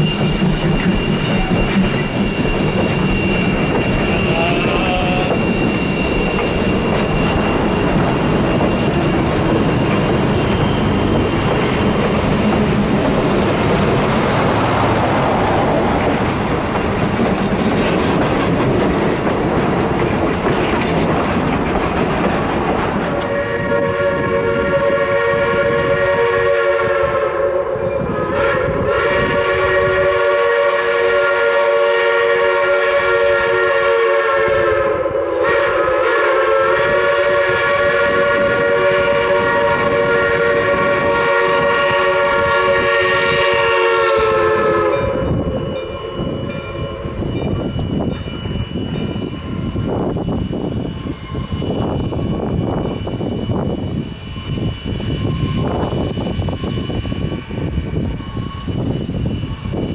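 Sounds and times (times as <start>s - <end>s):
steam locomotive chime whistle: 0.0s - 12.8s, 23.2s - 59.9s
train wheels clacking on rails: 0.0s - 23.9s.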